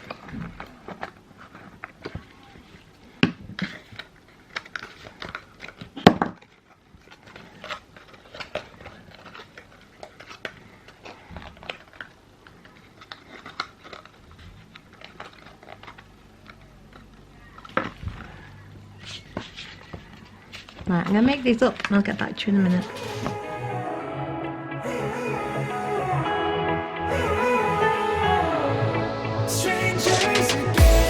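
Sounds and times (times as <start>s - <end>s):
cardboard boxes rustling and clicking: 0.0s - 22.2s.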